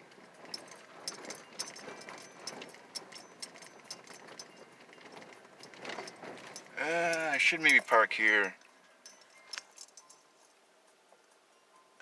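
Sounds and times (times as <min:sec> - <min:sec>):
light clicks and crackles: 0:00.0 - 0:11.4
faint road noise: 0:00.0 - 0:12.0.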